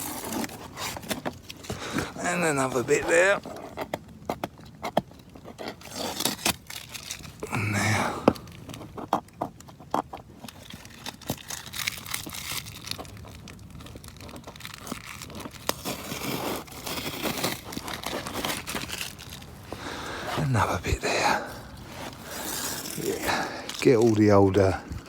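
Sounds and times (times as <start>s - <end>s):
packing tape tearing: 0.0s - 9.2s, 10.3s - 20.6s, 21.2s - 25.0s
cardboard crinkling: 0.0s - 25.0s.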